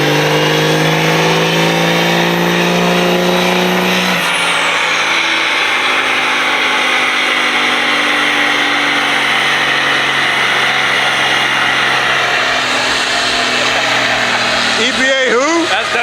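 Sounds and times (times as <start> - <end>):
diesel truck engine running: 0.0 - 16.0.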